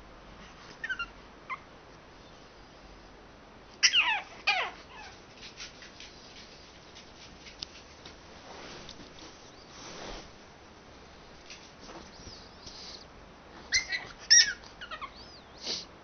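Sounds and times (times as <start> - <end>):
dog whining: 0.8 - 1.7, 3.8 - 5.2, 13.7 - 15.8.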